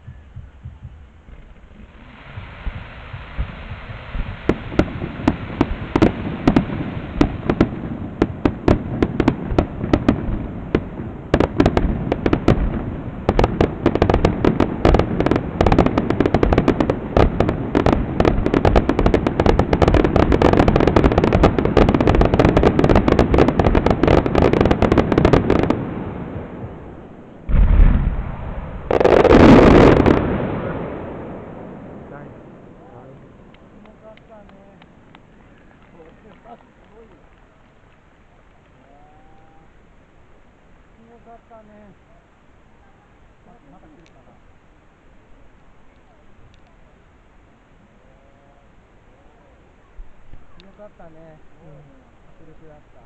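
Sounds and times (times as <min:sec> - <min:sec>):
heavy firework booms: 0:00.4 - 0:33.4
fireworks bursts and crackling: 0:00.5 - 0:39.1.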